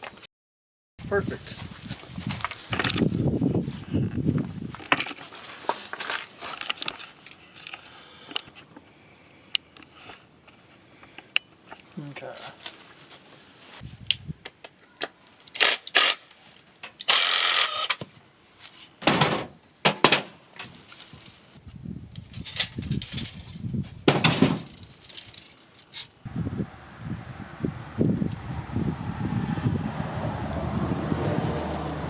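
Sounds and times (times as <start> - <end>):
low rumble: 26.3 - 31.7.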